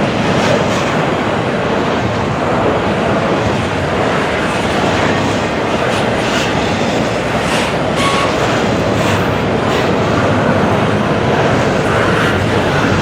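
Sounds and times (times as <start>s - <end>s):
train wheels rumbling on rails: 0.0s - 13.0s
wheels clacking over rail joints: 3.4s - 13.0s.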